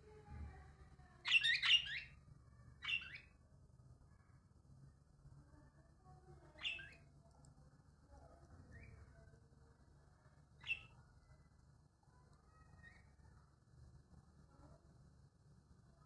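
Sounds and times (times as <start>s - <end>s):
bird chirping: 1.2s - 2.2s, 2.8s - 3.4s, 6.5s - 7.1s, 10.6s - 11.0s.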